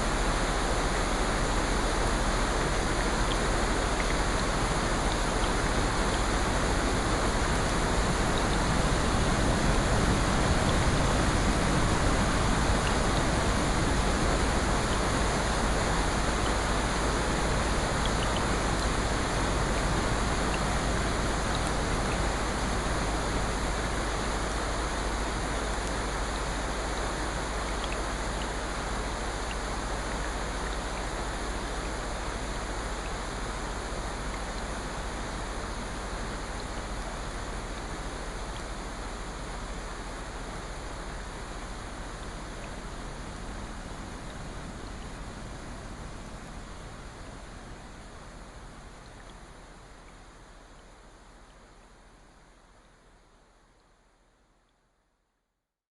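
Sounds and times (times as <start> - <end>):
ocean surf: 0.0 - 27.7
rain: 0.0 - 55.5
faint ticks: 3.2 - 6.3, 19.7 - 22.2, 27.6 - 32.0, 48.1 - 51.9.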